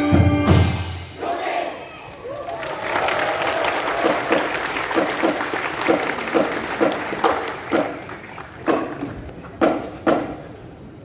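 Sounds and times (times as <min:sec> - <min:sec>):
audience applauding: 0:02.2 - 0:09.6
rhythmic strong claps: 0:03.0 - 0:10.4.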